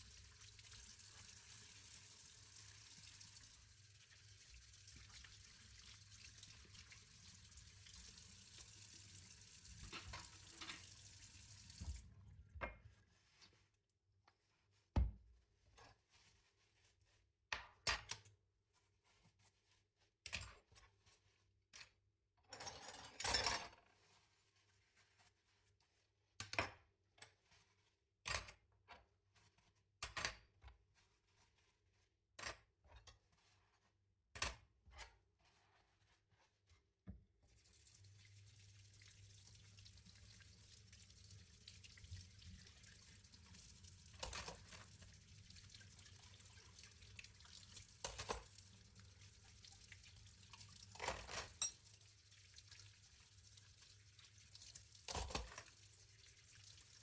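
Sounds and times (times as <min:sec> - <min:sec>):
tap water running into sink: 0:00.0 - 0:12.8, 0:37.4 - 0:57.0
dishes clinking: 0:51.0 - 0:51.9.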